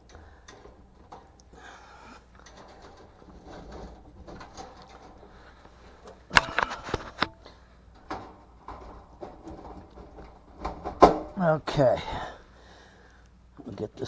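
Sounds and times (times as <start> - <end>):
metal clanks and clicks: 0.0 - 11.4.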